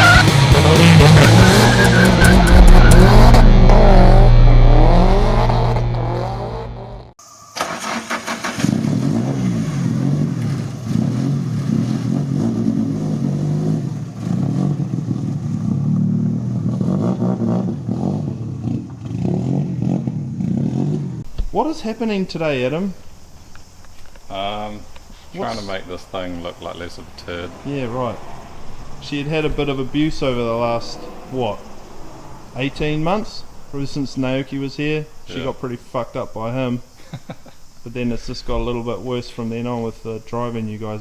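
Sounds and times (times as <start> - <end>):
tyre squeal: 0.0 - 7.0
car engine revving hard: 0.0 - 7.2, 8.3 - 21.2
quieter engine revving: 0.0 - 7.2, 7.8 - 21.3, 23.0 - 35.8.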